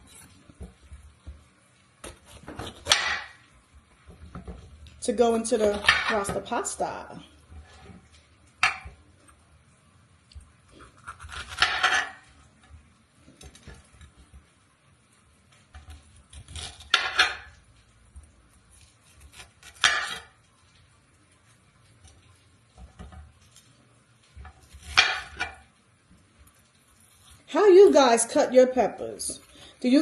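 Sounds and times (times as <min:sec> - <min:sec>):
kitchen utensils and dishes clattering: 0:02.5 - 0:03.4, 0:11.1 - 0:12.4, 0:16.8 - 0:17.6, 0:19.6 - 0:20.4, 0:24.4 - 0:25.7.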